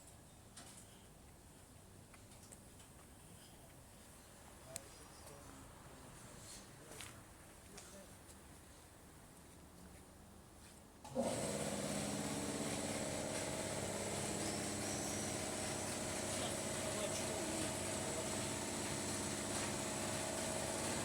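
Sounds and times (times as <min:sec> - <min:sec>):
engine idling: 0:11.1 - 0:21.0.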